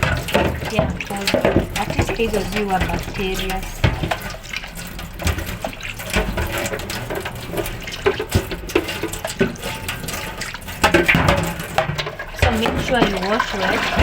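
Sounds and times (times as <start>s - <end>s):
water splashing in a sink: 0.0s - 14.0s.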